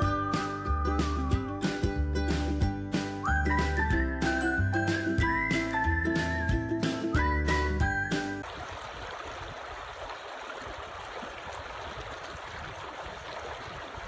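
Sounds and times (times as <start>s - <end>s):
music track: 0.0s - 8.4s.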